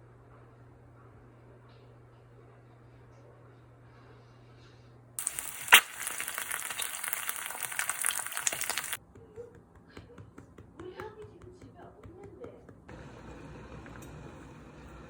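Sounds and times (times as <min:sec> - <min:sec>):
food sizzling in frying pan: 0:05.2 - 0:09.0.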